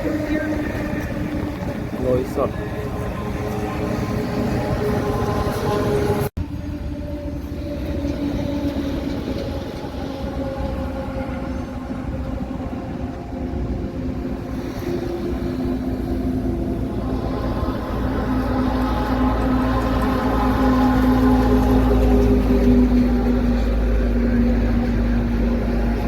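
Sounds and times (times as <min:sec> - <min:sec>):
truck diesel engine droning: 0:00.0 - 0:26.0.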